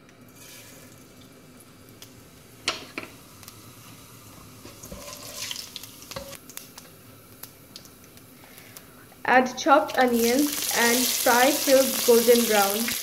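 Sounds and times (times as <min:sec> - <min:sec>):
seeds sizzling in hot oil: 0:00.3 - 0:13.0
wooden spatula scraping: 0:04.7 - 0:05.5.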